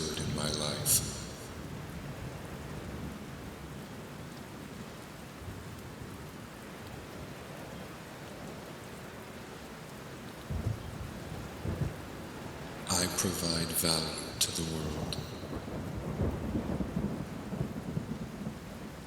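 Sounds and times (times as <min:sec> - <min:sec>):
thunder rumbling: 0:00.0 - 0:02.0, 0:12.9 - 0:19.0
rain falling: 0:00.0 - 0:19.0.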